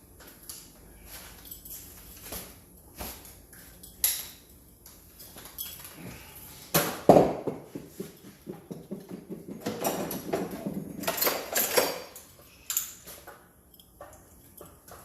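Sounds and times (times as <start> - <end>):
metal pipe clinks and knocks: 3.6 - 6.0, 7.3 - 15.0.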